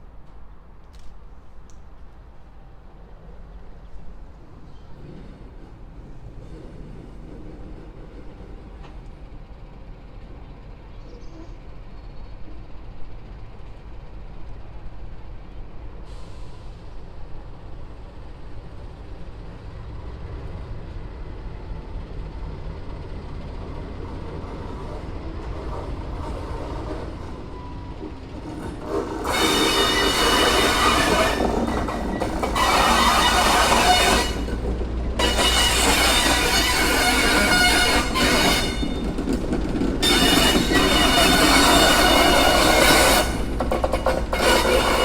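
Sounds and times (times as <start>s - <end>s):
wheel and rail noise: 0.0s - 45.0s
locomotive engine rumble: 0.2s - 45.0s
high-pitched wheel squeal: 28.8s - 39.4s, 40.0s - 45.0s.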